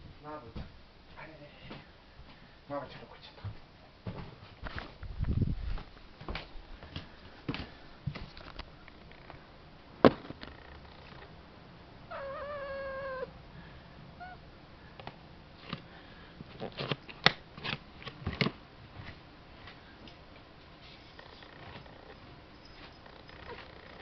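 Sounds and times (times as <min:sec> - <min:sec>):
cat meowing: 0:12.1 - 0:13.3, 0:14.2 - 0:14.4.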